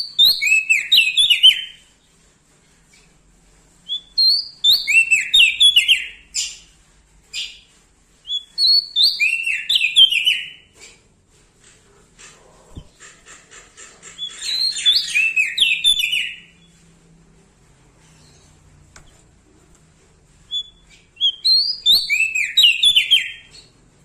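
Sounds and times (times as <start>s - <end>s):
bird singing warbled phrases: 20.5s - 23.8s.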